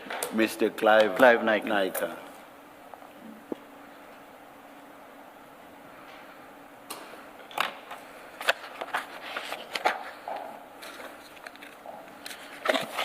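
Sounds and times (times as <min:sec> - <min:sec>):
paper rustling: 0:08.4 - 0:10.2, 0:10.8 - 0:13.0.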